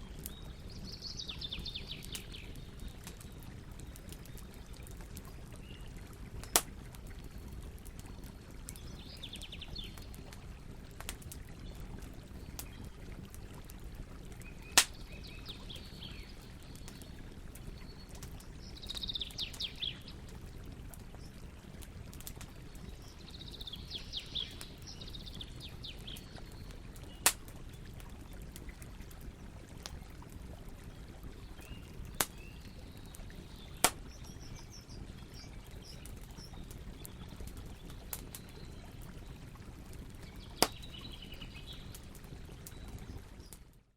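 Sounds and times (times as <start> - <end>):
campfire crackling: 0.0 - 43.6
burning wood popping: 6.3 - 8.9, 14.4 - 15.2, 26.0 - 29.1, 31.7 - 34.6, 40.2 - 41.1.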